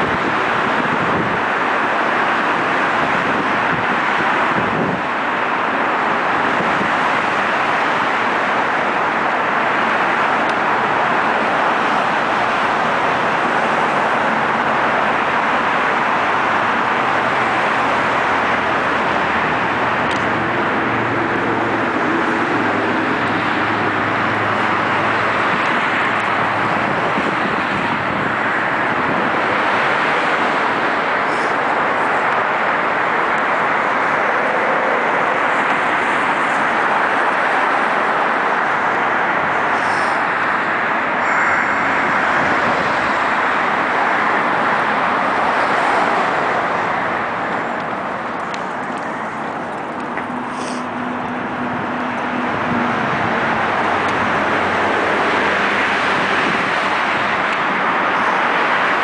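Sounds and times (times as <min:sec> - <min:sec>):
low engine hum: 0:00.0 - 0:59.0
road traffic noise: 0:00.0 - 0:59.0.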